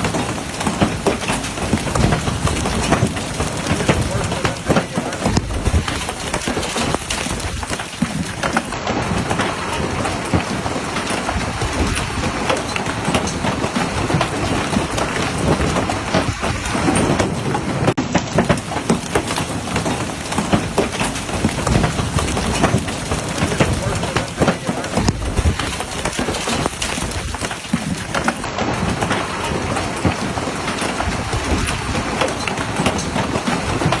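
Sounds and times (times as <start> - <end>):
hailstones pelting on water: 0.0 - 34.0.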